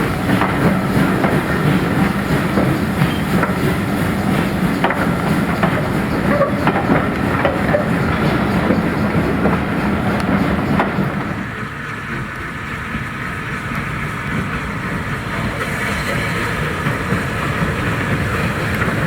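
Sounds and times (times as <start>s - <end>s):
train wheels clicking over rail joints: 0.0s - 13.1s
train rumble: 0.0s - 19.0s.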